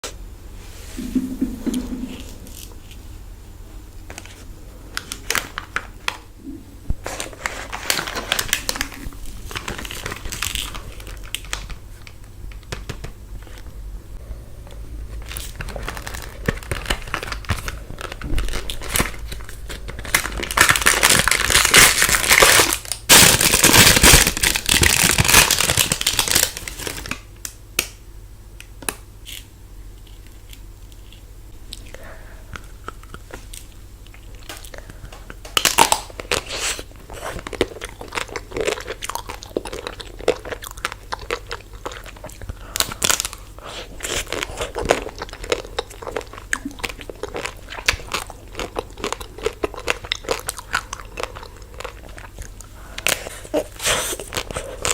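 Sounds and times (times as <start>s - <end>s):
plastic wrappers crinkling and tearing: 4.1s - 6.3s, 7.0s - 13.7s, 15.1s - 27.4s, 33.1s - 54.9s.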